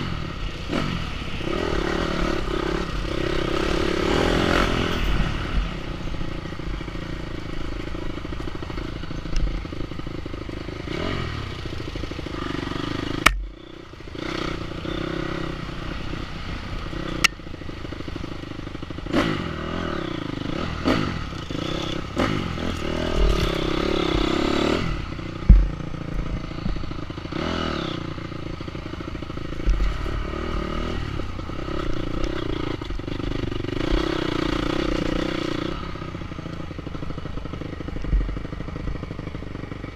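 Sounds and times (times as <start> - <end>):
motorcycle engine revving: 0.0 - 39.9
clatter and sharp knocks: 25.4 - 25.9.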